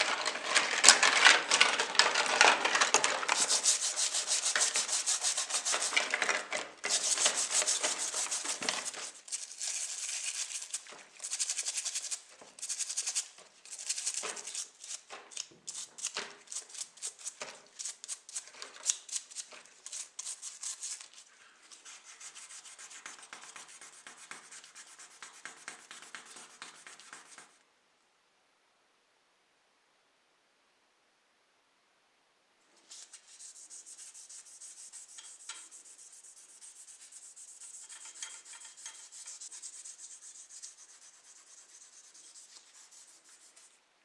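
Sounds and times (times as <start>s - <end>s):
hand sanding strokes: 3.3s - 6.2s, 6.8s - 15.0s, 19.2s - 27.6s, 32.8s - 43.8s.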